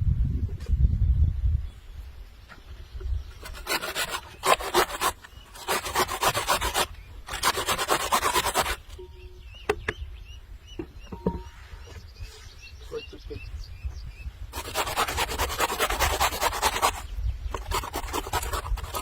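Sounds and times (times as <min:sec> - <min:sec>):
rapid rasping bursts: 0:03.4 - 0:09.0, 0:14.5 - 0:19.0.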